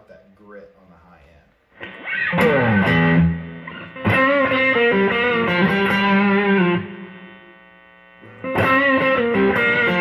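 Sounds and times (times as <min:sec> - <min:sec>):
overdriven electric guitar lick: 0:01.7 - 0:10.0.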